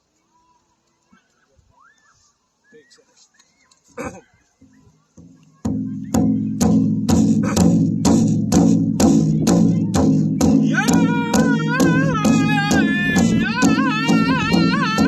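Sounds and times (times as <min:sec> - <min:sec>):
big drum beating: 0:05.2 - 0:15.0
high-pitched singer's voice: 0:09.2 - 0:15.0.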